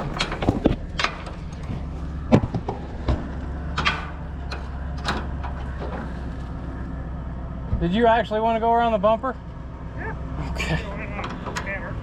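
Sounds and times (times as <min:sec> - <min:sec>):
sharp knocks and clanks: 0:00.0 - 0:06.2.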